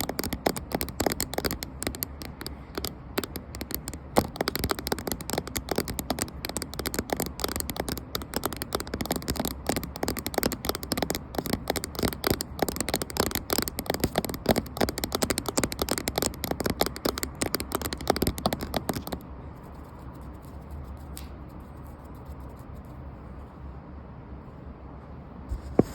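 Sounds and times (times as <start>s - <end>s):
rapid tapping on a camera: 0.0s - 19.2s.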